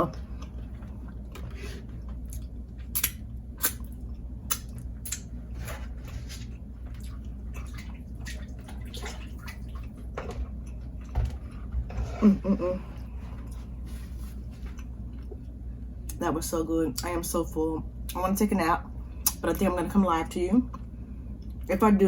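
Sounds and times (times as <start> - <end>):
low steady hum: 0.0 - 22.0
wet mouth smacks while eating: 2.3 - 5.3.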